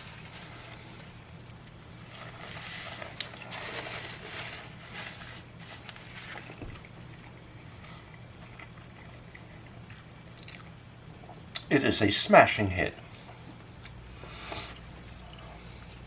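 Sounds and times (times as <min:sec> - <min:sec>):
steady low hum: 0:00.0 - 0:16.0
paper wrapper crinkling: 0:02.0 - 0:06.9.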